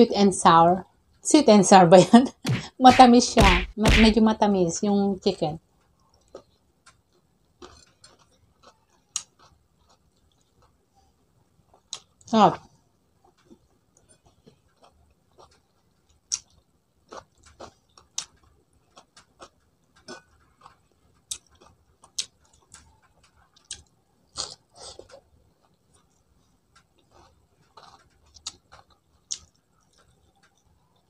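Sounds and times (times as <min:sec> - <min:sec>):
person chewing and smacking: 0:05.8 - 0:12.3, 0:13.2 - 0:31.0.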